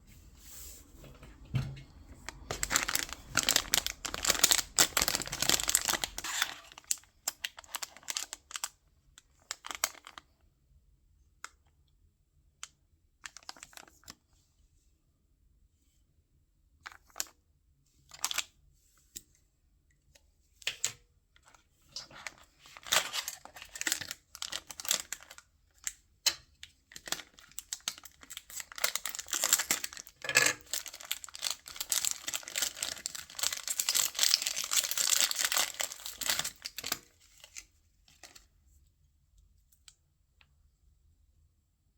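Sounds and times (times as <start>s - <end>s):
packaging crinkling: 2.2s - 10.2s, 21.9s - 25.4s, 26.9s - 38.4s.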